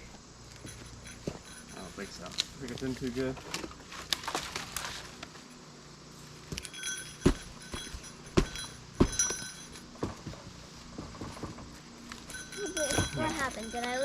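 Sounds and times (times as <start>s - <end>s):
faint high ringing: 0.0s - 2.4s, 6.1s - 10.6s, 12.0s - 14.0s
knocks and thuds on a tree: 6.5s - 11.8s.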